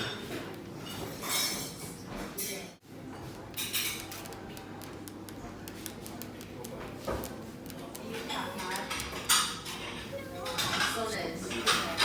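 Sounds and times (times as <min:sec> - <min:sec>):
dishes and cutlery clinking: 0:00.0 - 0:04.5, 0:08.1 - 0:12.0.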